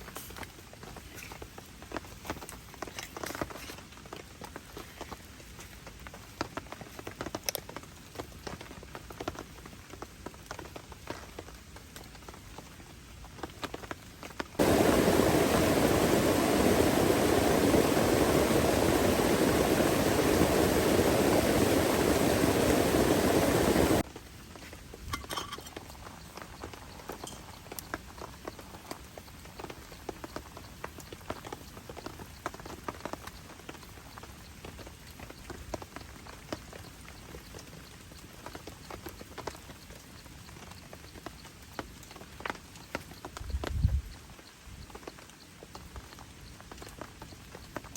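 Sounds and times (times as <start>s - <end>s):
rain pattering on a tent: 0.0s - 47.9s
heavy rain rushing: 14.6s - 24.0s.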